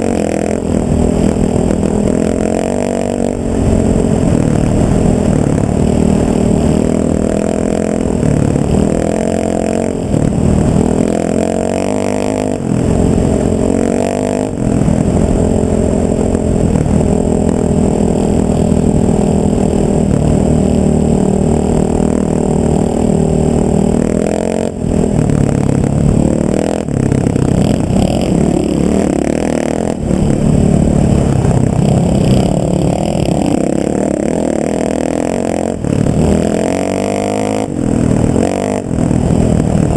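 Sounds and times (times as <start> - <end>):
vehicle engine changing speed: 0.0 - 39.9.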